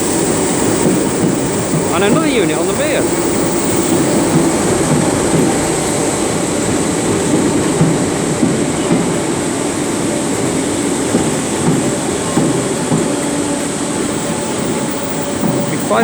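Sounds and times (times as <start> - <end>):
train rumbling through station: 0.0 - 16.0
wheels clicking over rail joints: 0.0 - 16.0.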